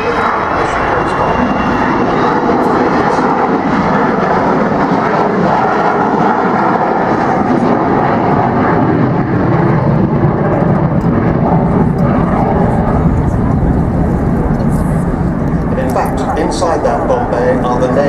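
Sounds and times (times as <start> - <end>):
jet bomber flying past: 0.0 - 18.0.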